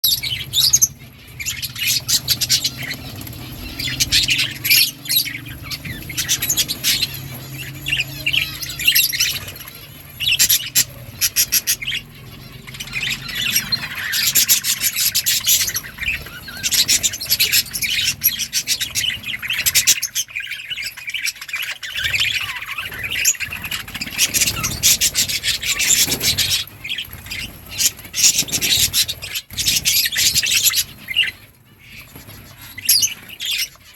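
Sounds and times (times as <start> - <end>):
budgerigars chirping: 0.0 - 33.9.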